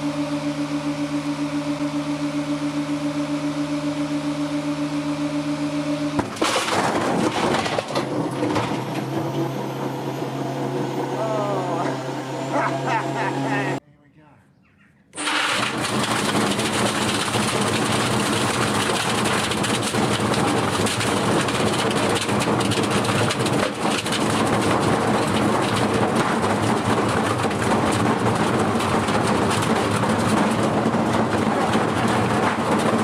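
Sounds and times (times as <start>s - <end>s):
washing machine motor hum: 7.3s - 13.8s, 15.2s - 33.0s
washing machine rattling: 15.5s - 33.0s.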